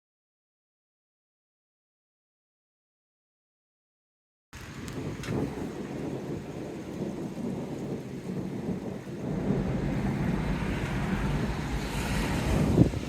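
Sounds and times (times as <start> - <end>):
thunder rumbling: 4.6 - 13.0.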